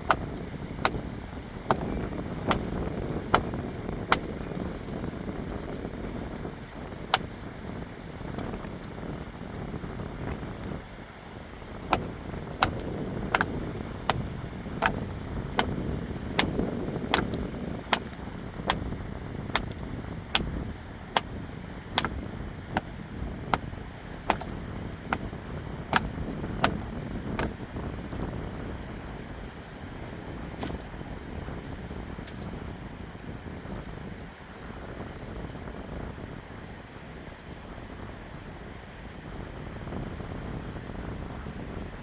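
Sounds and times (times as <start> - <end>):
sharp knocks: 0.0 - 1.1, 1.7 - 4.4, 7.2 - 7.4, 11.9 - 19.0, 19.6 - 21.4, 22.0 - 23.0, 24.3 - 25.3, 26.0 - 27.6.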